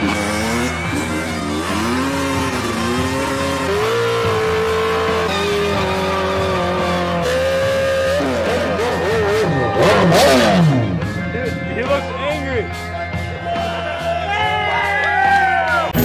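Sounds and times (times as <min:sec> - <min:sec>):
dirt bike engine revving high: 0:00.0 - 0:13.3.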